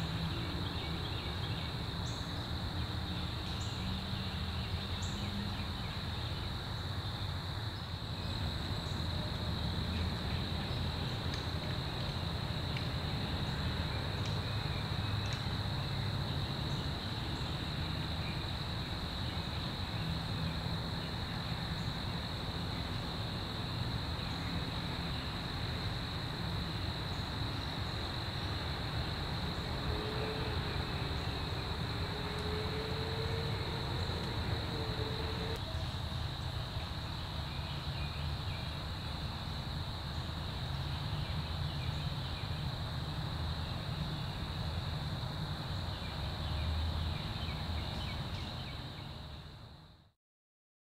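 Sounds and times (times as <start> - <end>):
insects buzzing: 0.0 - 49.6
faint wavering hum: 27.1 - 35.9.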